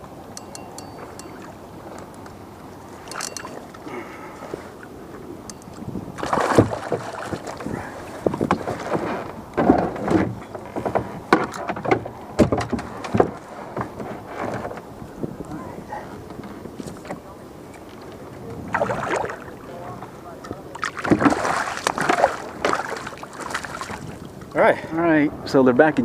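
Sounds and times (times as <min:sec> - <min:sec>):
water splashing: 0:00.0 - 0:09.4, 0:16.8 - 0:24.5.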